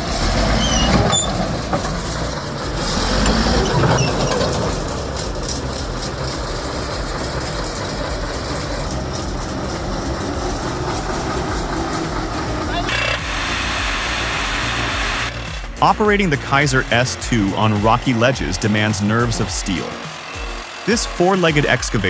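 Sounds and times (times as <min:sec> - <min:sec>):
heavy machine engine running: 0:00.0 - 0:22.0
high clicks or squeaks: 0:00.2 - 0:02.6.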